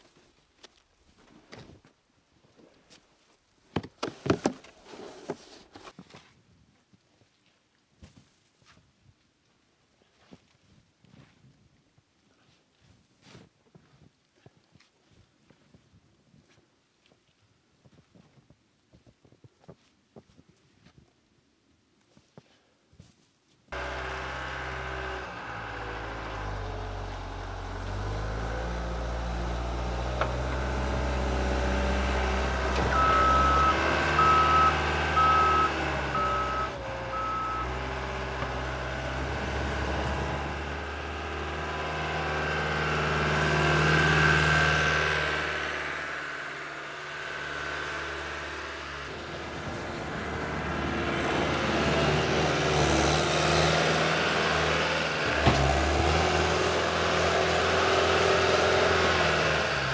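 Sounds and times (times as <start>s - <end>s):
skid steer engine running: 23.8s - 59.9s
back-up alarm beeping: 32.9s - 37.7s.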